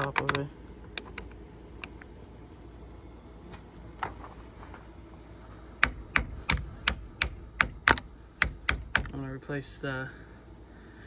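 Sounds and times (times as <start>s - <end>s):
hand tool clicking: 0.0s - 2.1s, 5.8s - 9.2s.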